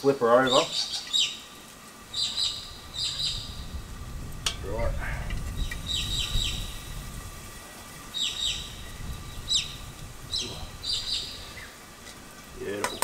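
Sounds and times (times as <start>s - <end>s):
birds chirping: 0.0s - 13.0s
faint low rumble: 2.1s - 11.7s.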